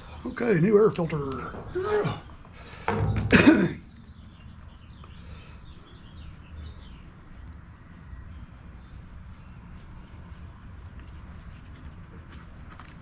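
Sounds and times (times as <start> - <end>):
man clearing his throat: 3.2 - 3.8.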